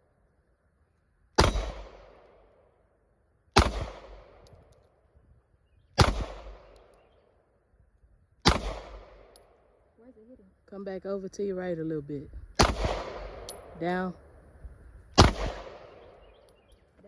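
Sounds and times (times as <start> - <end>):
pistol shots with echo: 1.4 - 2.6, 3.6 - 4.5, 6.0 - 7.0, 8.4 - 9.6, 12.6 - 13.8, 15.2 - 16.4.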